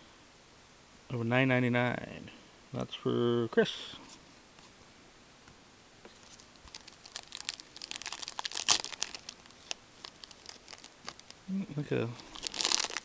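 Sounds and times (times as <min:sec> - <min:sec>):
card pack wrapper crinkling: 0:06.1 - 0:11.4, 0:12.0 - 0:13.0.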